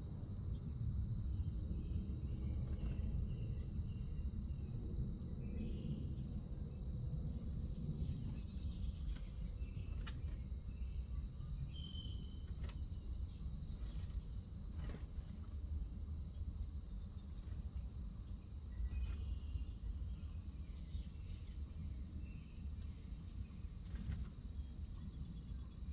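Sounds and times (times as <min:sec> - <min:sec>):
crickets trilling: 0:00.0 - 0:25.9
low background rumble: 0:00.0 - 0:25.9.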